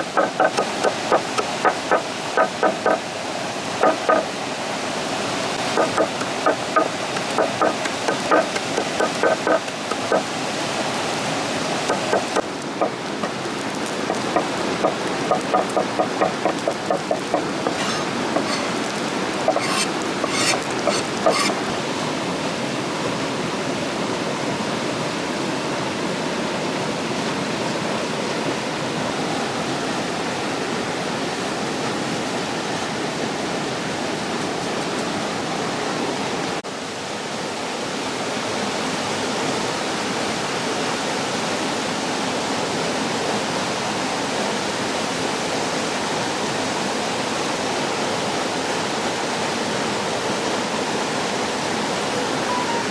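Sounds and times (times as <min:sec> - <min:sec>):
waterfall rushing: 0:00.0 - 0:21.9.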